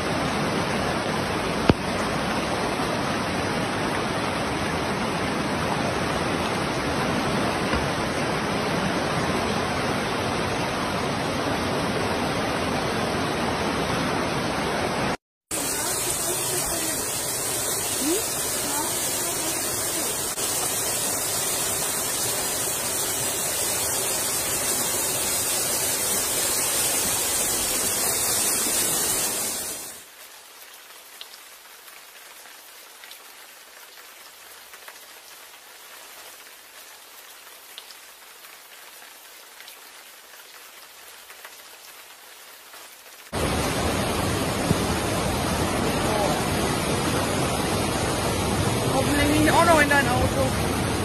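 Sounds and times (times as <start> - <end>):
fast-flowing floodwater: 0.0 - 30.1, 43.3 - 51.0
heavy rain: 0.0 - 51.0
thin hiss of water: 15.5 - 30.0.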